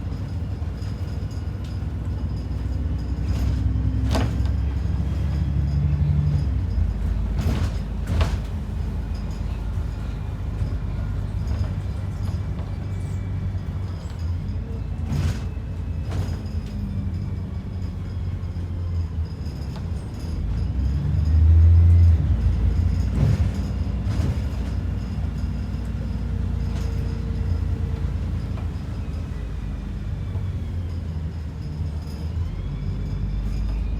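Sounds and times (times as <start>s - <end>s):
bus engine and road rumble: 0.0s - 33.9s
short knocks and rattles: 2.7s - 5.3s, 6.2s - 10.7s.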